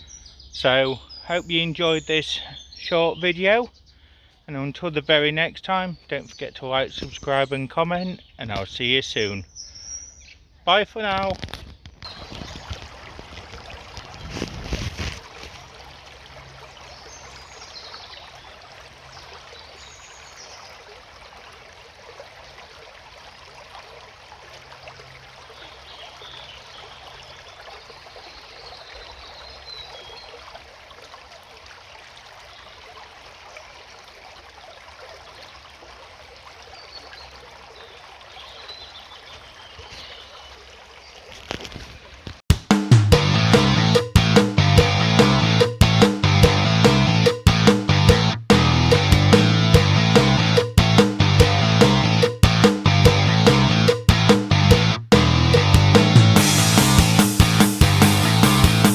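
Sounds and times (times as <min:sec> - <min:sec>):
stream babbling: 0:00.0 - 0:42.4
faint bird chirps: 0:09.4 - 0:10.4.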